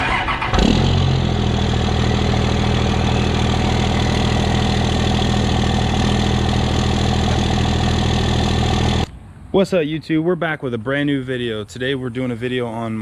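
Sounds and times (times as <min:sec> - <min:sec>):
diesel engine idling: 0:00.0 - 0:09.1.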